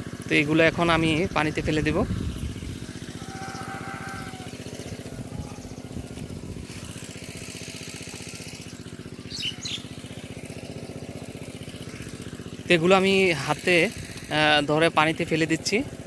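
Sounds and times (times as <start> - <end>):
water pump engine running: 0.0 - 16.0
bird chirps: 8.6 - 10.0.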